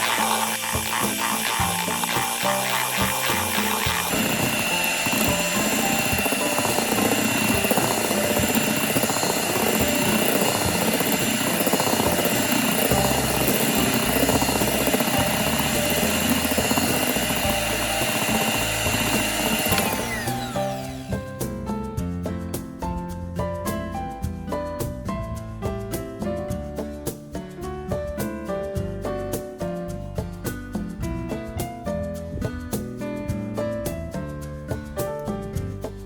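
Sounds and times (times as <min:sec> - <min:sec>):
electric hand mixer whirring: 0:00.0 - 0:21.5
music: 0:00.0 - 0:36.0.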